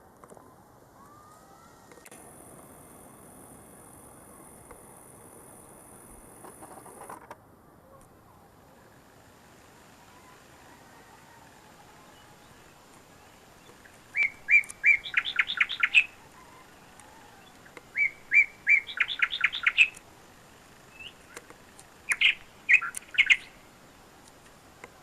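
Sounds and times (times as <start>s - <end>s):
songbird singing: 7.8s - 25.0s.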